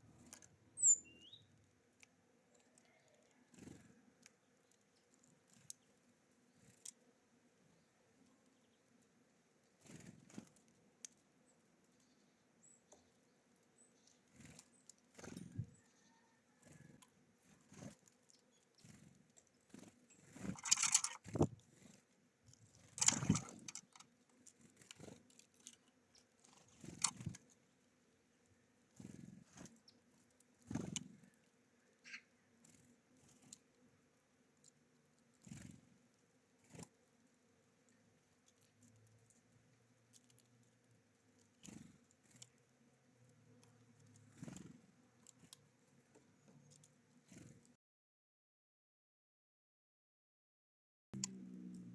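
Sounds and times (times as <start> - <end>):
birds pecking and scuffling: 0.0 - 47.8
faint high bird chirps: 0.1 - 1.6, 12.0 - 16.9, 31.8 - 32.5.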